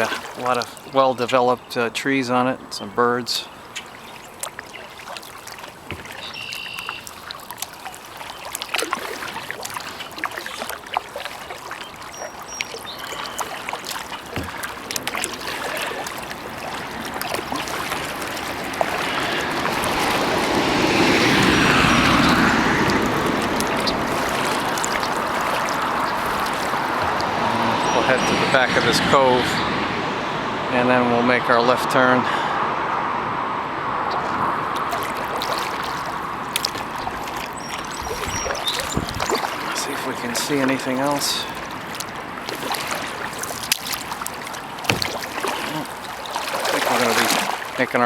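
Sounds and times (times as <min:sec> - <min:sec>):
small splashes against hull: 0:00.0 - 0:00.9, 0:03.6 - 0:28.6, 0:34.1 - 0:48.0
kayak paddle dipping and dripping: 0:00.0 - 0:28.9, 0:34.0 - 0:48.0
broad rushing noise: 0:13.4 - 0:48.0.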